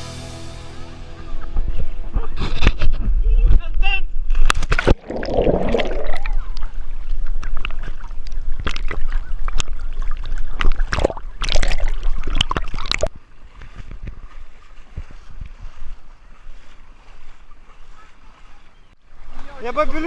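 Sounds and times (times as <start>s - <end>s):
wind rumble on microphone: 1.4s - 5.0s, 6.0s - 19.4s
water splashing in surges: 4.6s - 20.0s.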